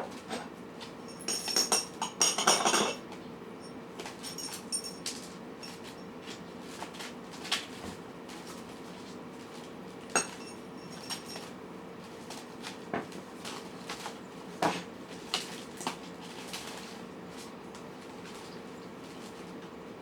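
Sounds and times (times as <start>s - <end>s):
food dishes clinking: 1.2s - 3.0s, 10.2s - 11.4s.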